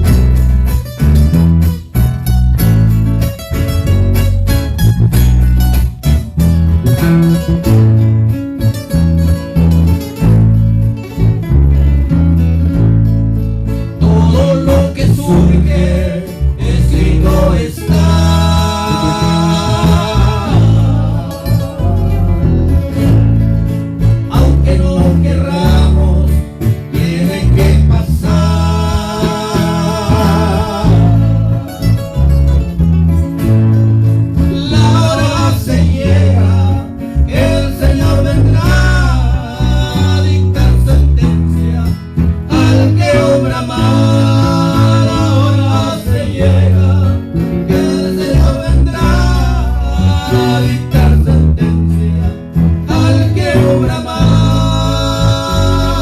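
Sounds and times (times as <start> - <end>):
low bass line: 0.0 - 56.0
strummed acoustic guitars: 0.0 - 56.0
vocal trio singing: 13.9 - 32.8, 34.3 - 56.0.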